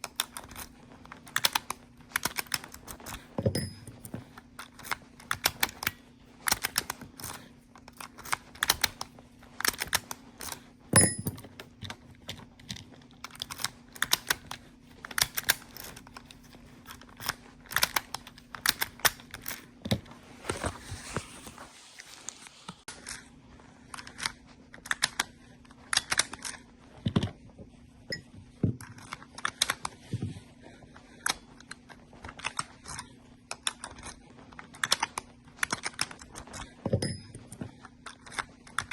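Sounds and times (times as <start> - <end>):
steady low hum: 0.0 - 25.9
small metal parts clicking: 1.3 - 20.0
brief hiss: 20.4 - 22.9.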